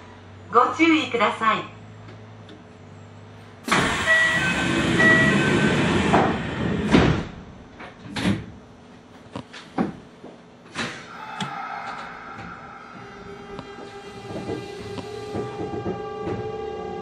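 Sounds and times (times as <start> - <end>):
train clicks and knocks on track: 11.9 - 17.0.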